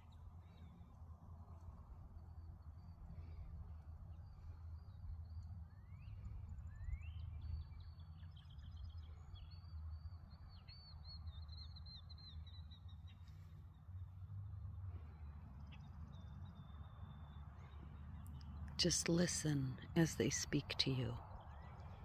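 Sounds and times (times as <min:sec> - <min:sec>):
songbirds chirping and whistling: 0:02.2 - 0:13.9.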